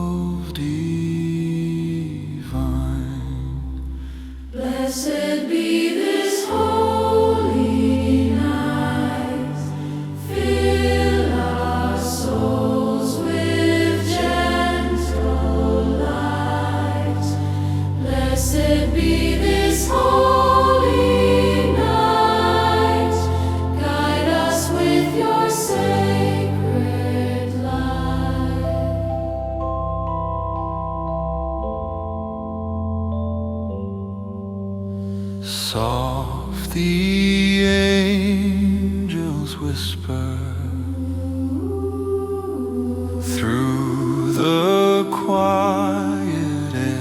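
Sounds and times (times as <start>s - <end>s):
choir singing wordless lines: 4.4s - 29.6s, 35.4s - 47.0s
sustained low bass chords: 7.4s - 35.1s.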